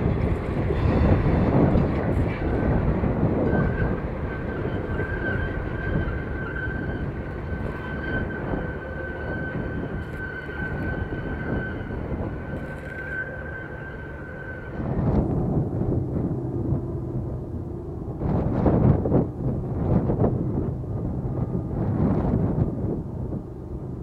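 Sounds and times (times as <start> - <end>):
freight train rumble: 0.0 - 24.0.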